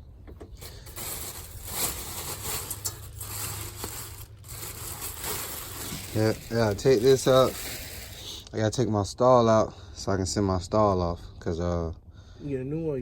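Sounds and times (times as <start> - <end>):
objects rustling and scraping: 0.4 - 8.5.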